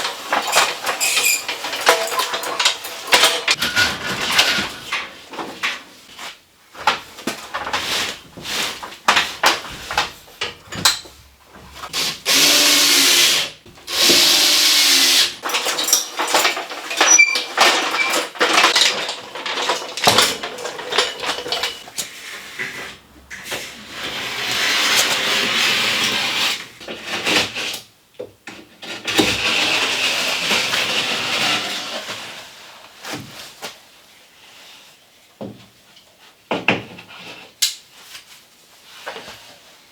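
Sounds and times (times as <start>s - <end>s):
knocks and clatter: 0.3s - 5.8s
power drill running: 12.3s - 15.3s.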